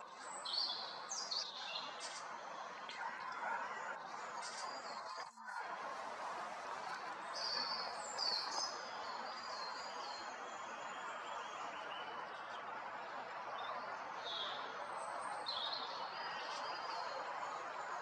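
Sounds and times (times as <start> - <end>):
small birds chirping: 0.0 - 5.5, 6.9 - 18.0.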